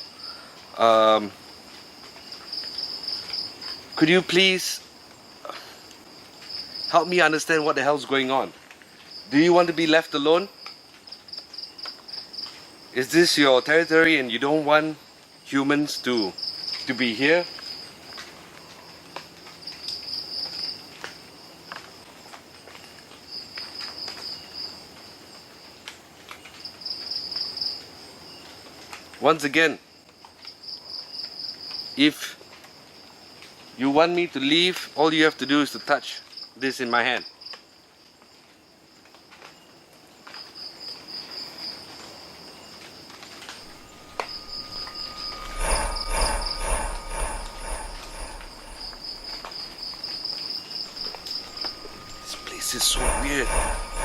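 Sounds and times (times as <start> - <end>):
night insects chirping: 0.0 - 25.8, 26.6 - 28.7, 40.4 - 54.0
insects trilling: 40.5 - 54.0.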